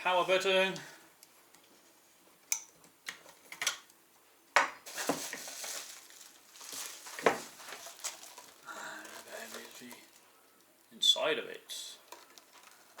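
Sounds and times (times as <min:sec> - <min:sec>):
rustling: 0:04.8 - 0:10.7, 0:12.0 - 0:13.0.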